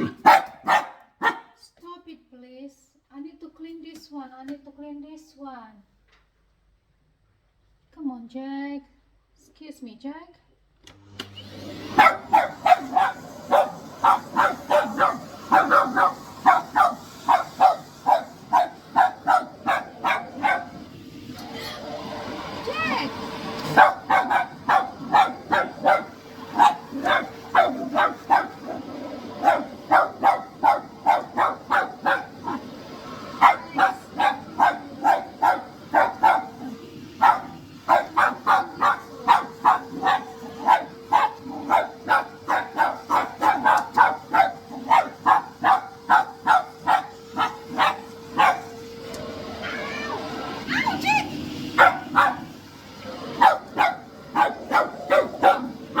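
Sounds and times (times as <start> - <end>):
dog barking: 0.0 - 1.6, 11.8 - 20.9, 23.6 - 48.8, 50.8 - 56.0
vacuum cleaner hum: 10.8 - 56.0.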